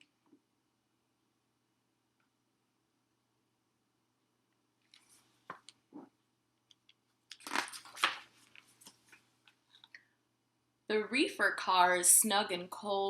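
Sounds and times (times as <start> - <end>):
paper rustling and crinkling: 7.3 - 9.3.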